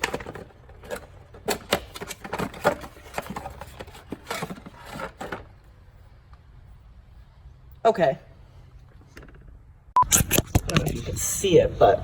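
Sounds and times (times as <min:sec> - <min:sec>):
knocks and rustles of handling: 0:00.0 - 0:05.8.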